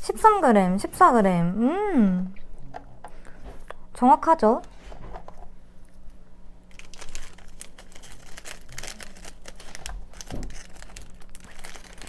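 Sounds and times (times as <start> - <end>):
plastic wrappers crackling: 6.7 - 12.0.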